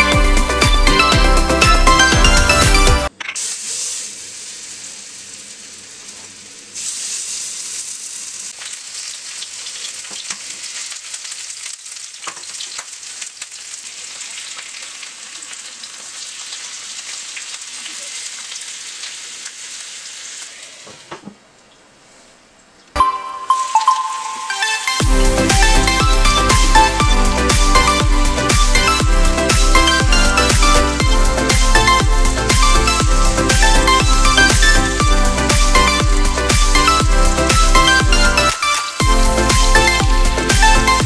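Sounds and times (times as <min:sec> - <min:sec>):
chicken sizzling in oil: 0:03.4 - 0:21.0.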